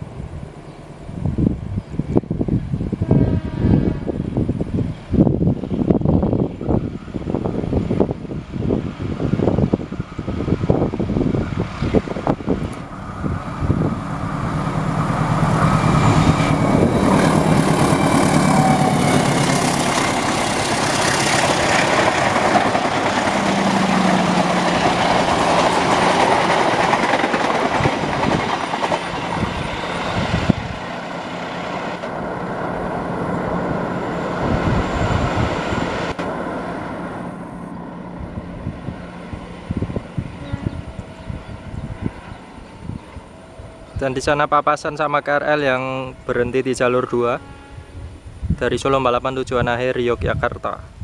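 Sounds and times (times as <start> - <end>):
diesel locomotive engine running: 4.3 - 44.6
train wheels clattering on rail joints: 16.2 - 30.5.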